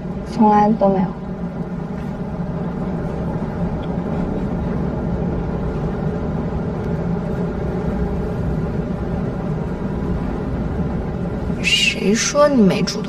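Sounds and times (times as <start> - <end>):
vehicle cabin rumble: 0.0 - 13.0.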